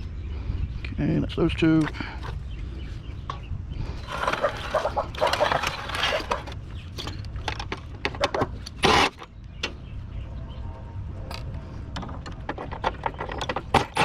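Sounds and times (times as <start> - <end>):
metal parts and tools clattering: 4.0 - 9.2, 12.0 - 14.0.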